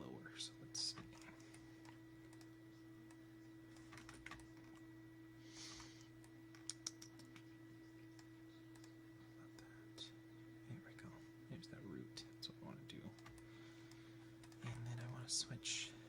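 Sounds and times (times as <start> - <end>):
low electrical hum: 0.0 - 16.0
keyboard clicks: 0.9 - 4.9, 6.0 - 7.5, 8.1 - 9.7, 13.1 - 15.1.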